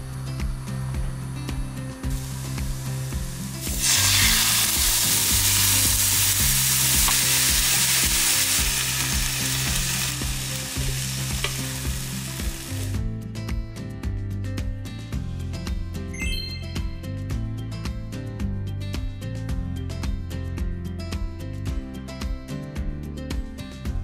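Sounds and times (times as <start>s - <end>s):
mushrooms sizzling in a frying pan: 2.1s - 13.0s.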